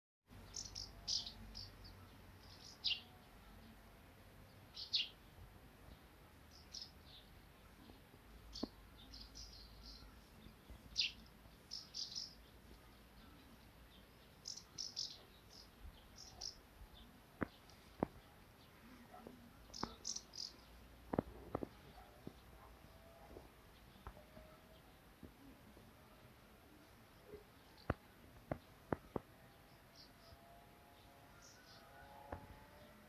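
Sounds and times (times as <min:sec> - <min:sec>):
faint outdoor background: 0:00.2 - 0:33.0
small birds chirping: 0:00.3 - 0:33.0.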